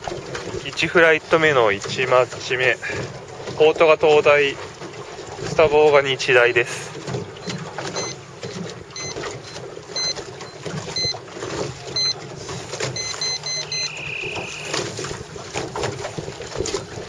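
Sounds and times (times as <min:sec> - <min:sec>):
water noise: 0:00.0 - 0:17.0
wind: 0:00.0 - 0:17.0
electronic timer beeping: 0:07.4 - 0:08.2, 0:09.0 - 0:11.2, 0:12.0 - 0:12.2, 0:13.0 - 0:14.8
long timer tone: 0:13.0 - 0:14.8.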